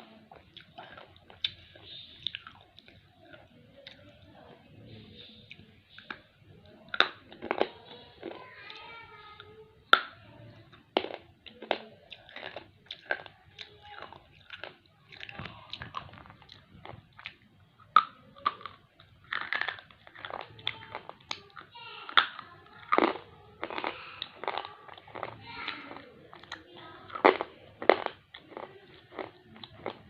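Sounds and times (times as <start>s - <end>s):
slate pencil being chewed: 18.0s - 30.0s.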